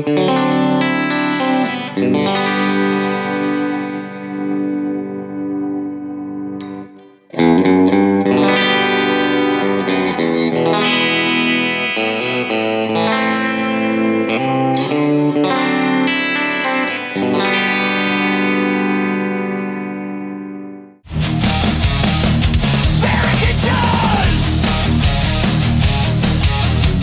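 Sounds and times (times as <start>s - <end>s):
distorted electric guitar chords: 0.0s - 27.0s.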